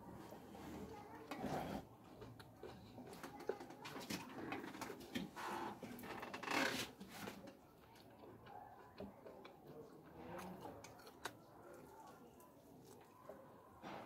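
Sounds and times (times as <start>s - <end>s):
person chewing and lip smacking: 2.0s - 3.8s, 7.8s - 13.3s.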